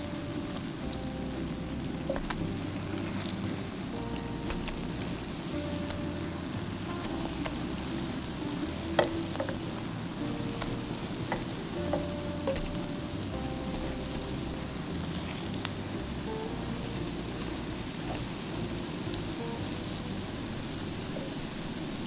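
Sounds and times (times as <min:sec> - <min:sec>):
patties sizzling in oil: 0:00.0 - 0:22.0.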